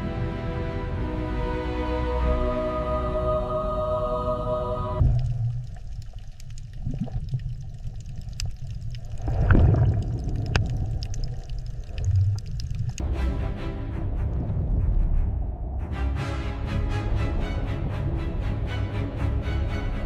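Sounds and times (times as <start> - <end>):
background music: 0.0 - 5.0, 13.0 - 20.0
bubbling swell: 3.9 - 13.0
underwater low rumble: 4.4 - 16.2
underwater clicks: 5.0 - 13.0.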